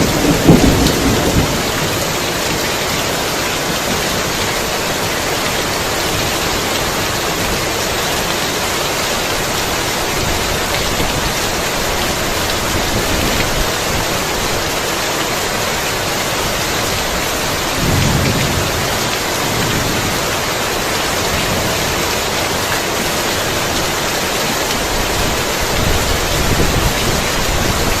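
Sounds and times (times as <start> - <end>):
low thunder rumbling: 0.0 - 4.4, 16.8 - 22.2
heavy rain: 0.0 - 28.0.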